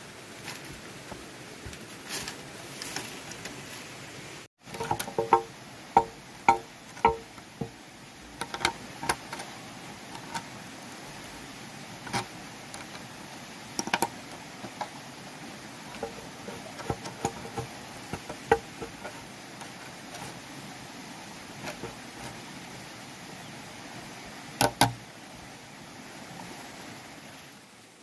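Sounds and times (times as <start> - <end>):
hollow knocks and taps: 4.7 - 7.8, 15.9 - 20.3, 21.6 - 22.4.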